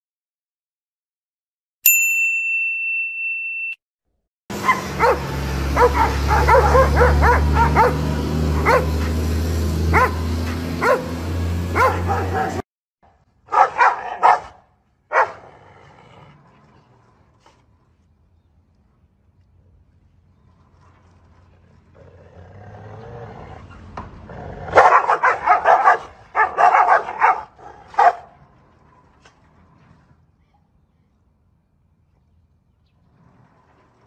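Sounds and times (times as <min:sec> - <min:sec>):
dog barking: 0:04.6 - 0:09.0, 0:09.9 - 0:11.1, 0:11.8 - 0:12.6, 0:13.5 - 0:15.5, 0:24.7 - 0:28.3.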